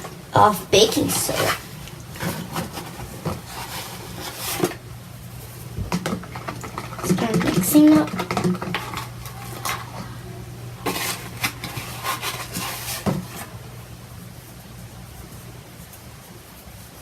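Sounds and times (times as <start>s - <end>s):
utensil stirring slime in a bowl: 0.0s - 4.8s, 5.4s - 10.2s, 10.8s - 13.6s
steady low hum: 0.0s - 17.0s.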